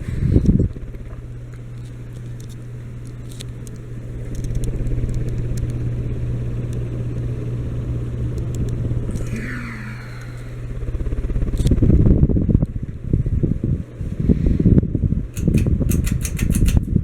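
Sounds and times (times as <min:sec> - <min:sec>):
ceiling fan motor hum: 0:00.0 - 0:17.0
fan blades whooshing: 0:00.0 - 0:17.0.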